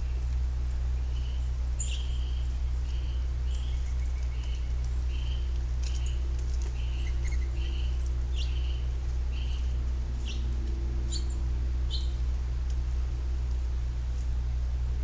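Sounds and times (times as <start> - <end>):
steady low hum: 0.0 - 15.0
small bird chirping: 0.9 - 12.2
woodpecker tapping: 1.2 - 12.8.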